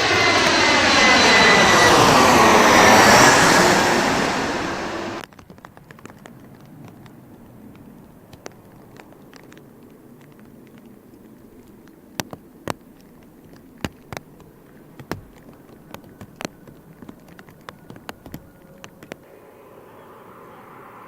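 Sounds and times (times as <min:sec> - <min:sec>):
low rush of rain: 0:00.0 - 0:21.0
raindrops tapping close: 0:05.2 - 0:19.2.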